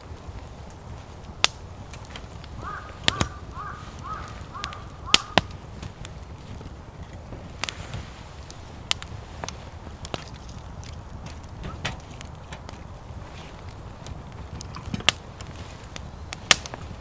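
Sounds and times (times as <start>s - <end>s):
steady low rumble: 0.0s - 17.0s
sharp clicks and pops: 0.2s - 17.0s
crow cawing: 2.5s - 5.6s.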